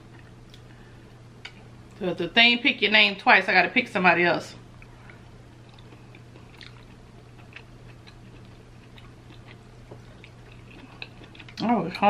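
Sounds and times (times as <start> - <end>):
low steady hum: 0.0 - 12.0
person chewing with wet clicks: 0.1 - 0.7, 4.7 - 12.0.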